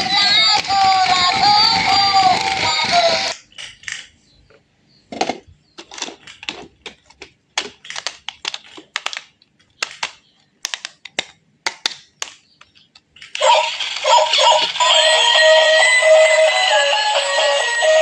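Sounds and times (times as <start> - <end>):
small hard objects clicking: 5.8 - 13.4.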